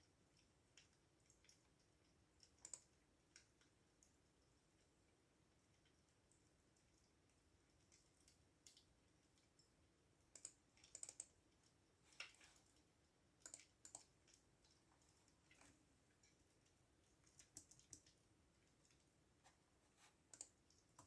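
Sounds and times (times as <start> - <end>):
computer keyboard typing: 2.4 - 2.9, 10.4 - 11.4, 17.2 - 18.1, 20.4 - 21.0.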